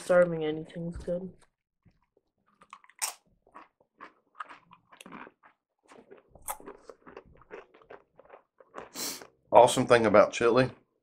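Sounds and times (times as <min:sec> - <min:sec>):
chip crunching and chewing: 0:01.9 - 0:09.8.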